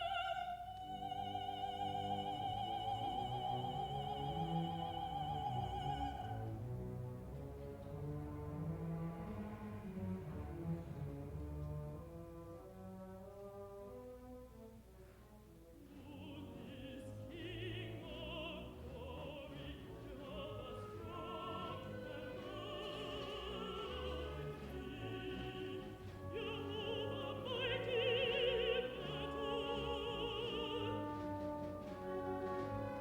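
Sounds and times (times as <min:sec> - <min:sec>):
contralto singing with vibrato: 0:00.0 - 0:06.5, 0:15.9 - 0:33.0
full orchestra playing: 0:00.0 - 0:14.7, 0:15.7 - 0:33.0.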